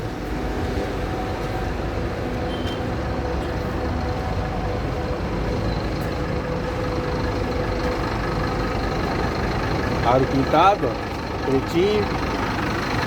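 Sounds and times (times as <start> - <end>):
bus diesel engine idling: 0.0 - 13.0.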